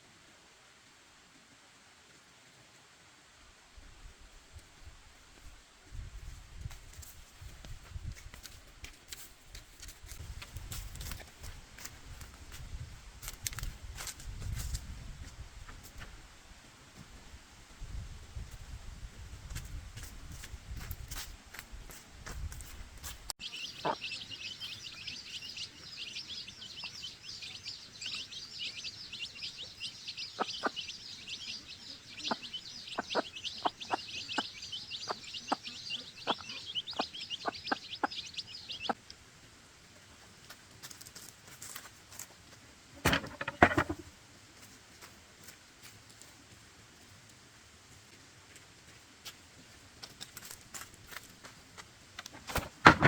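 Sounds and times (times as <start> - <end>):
birds chirping: 23.4 - 39.0.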